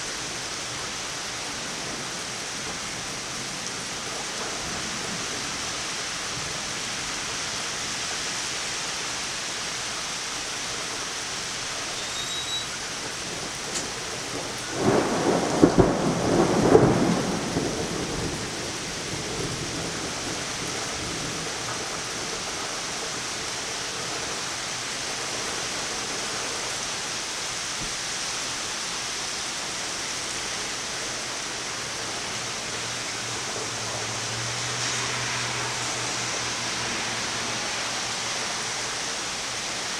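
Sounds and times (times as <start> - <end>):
rain falling: 0.0 - 39.9
thunder clap: 13.4 - 18.8.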